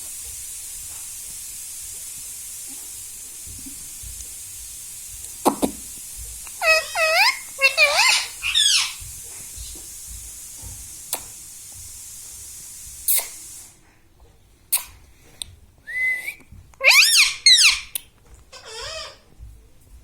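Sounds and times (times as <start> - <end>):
steady hiss: 0.0 - 16.8
parrot whistled squawks: 6.6 - 9.0, 15.9 - 17.9.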